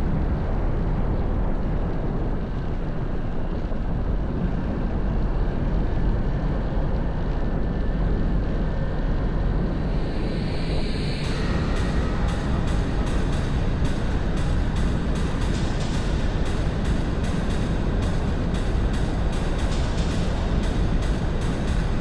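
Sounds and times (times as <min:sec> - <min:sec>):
wind rushing over microphone: 0:00.0 - 0:15.6.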